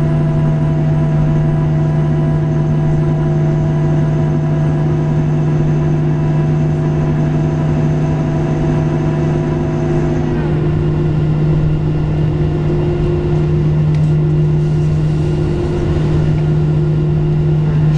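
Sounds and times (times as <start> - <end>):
aircraft cabin drone: 6.2 - 17.9.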